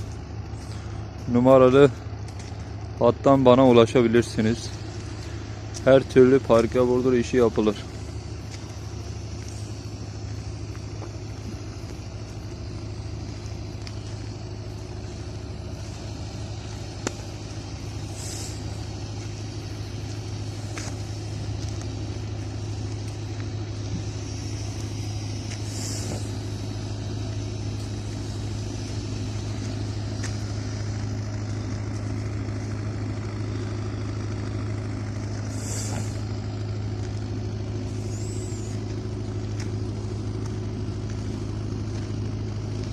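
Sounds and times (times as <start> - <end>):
heavy engine running: 0.0 - 42.9
short hisses: 18.0 - 19.0, 24.0 - 27.1, 35.4 - 36.3, 37.9 - 38.8.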